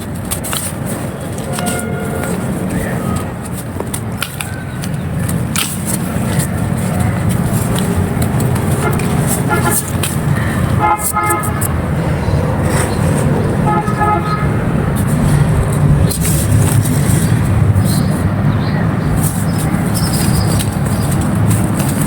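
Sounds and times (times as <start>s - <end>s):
road traffic rumble: 0.0s - 22.0s
vehicle horn tooting: 1.4s - 3.3s, 8.8s - 10.1s, 10.8s - 11.8s, 13.6s - 14.9s.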